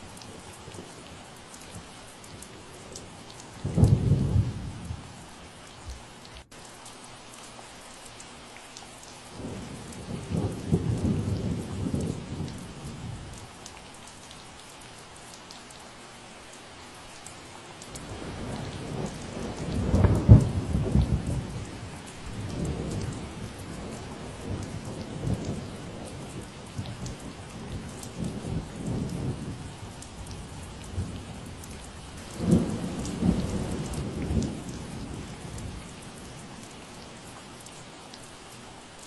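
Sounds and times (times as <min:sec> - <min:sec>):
steady rain falling: 0:00.0 - 0:39.0
rolling thunder rumbling: 0:03.6 - 0:05.2, 0:09.4 - 0:13.4, 0:18.0 - 0:36.5.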